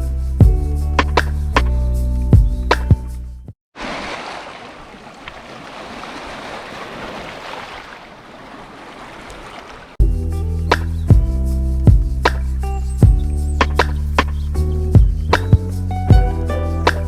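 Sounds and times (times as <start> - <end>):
ocean surf washing on beach: 3.8 - 10.0.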